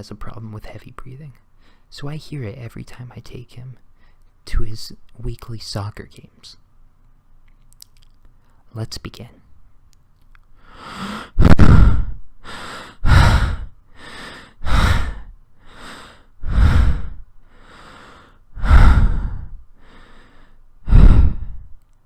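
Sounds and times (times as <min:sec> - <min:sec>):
man breathing heavily: 0:10.6 - 0:21.8.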